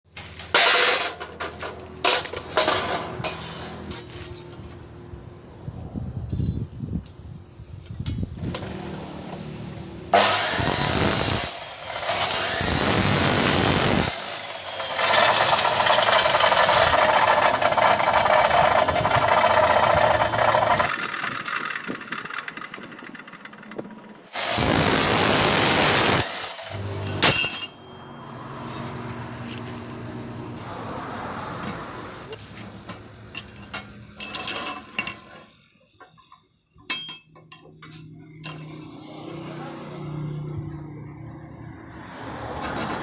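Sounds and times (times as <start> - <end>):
power tool cutting steel: 10.1 - 22.7, 24.3 - 27.7.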